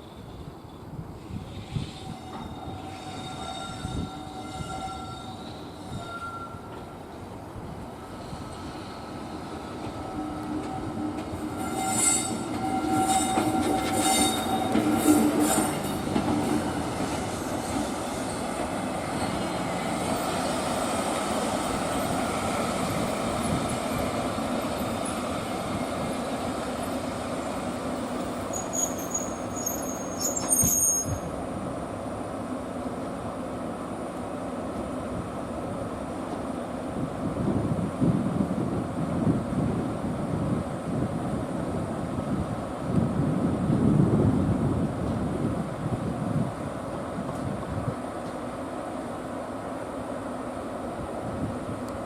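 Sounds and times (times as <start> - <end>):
train wheels squealing: 0.0 - 7.0, 8.1 - 31.4.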